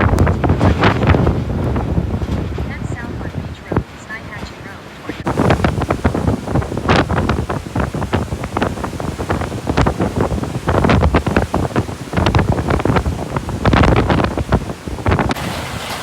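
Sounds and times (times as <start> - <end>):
wind buffeting microphone: 0.0 - 16.0
steady even hiss: 5.3 - 11.2.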